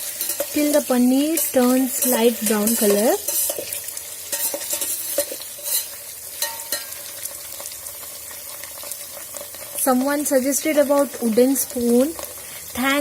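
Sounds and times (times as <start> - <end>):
metal spoon scraping pan: 0.0 - 7.1
food sizzling in hot oil: 0.0 - 13.0.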